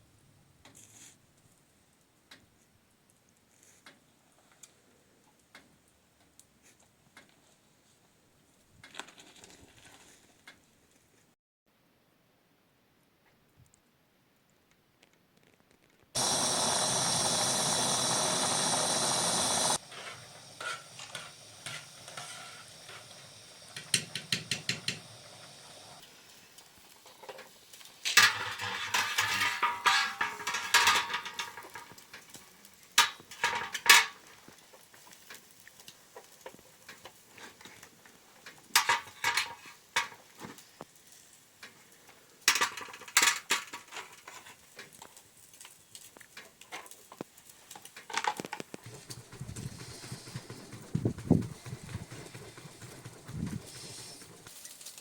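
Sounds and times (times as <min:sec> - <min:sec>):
loud steady hiss: 0:16.2 - 0:34.8, 0:48.7 - 0:55.0
utensils and dishes clattering: 0:28.0 - 0:32.0, 0:38.8 - 0:40.2.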